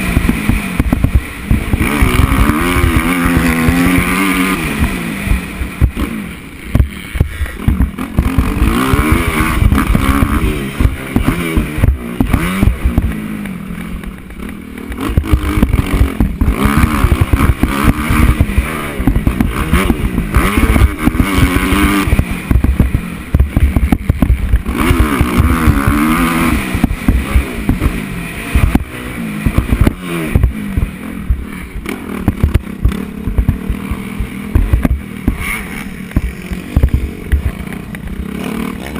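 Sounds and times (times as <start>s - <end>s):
motocross bike engine revving: 0.0s - 38.9s
bike knocks and clatter: 6.7s - 26.1s, 28.6s - 38.1s.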